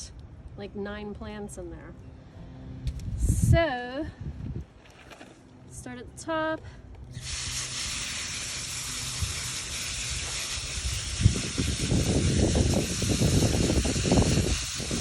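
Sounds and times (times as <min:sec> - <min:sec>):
hose nozzle spray hissing: 0:07.1 - 0:15.0
water spattering on soil: 0:07.2 - 0:15.0.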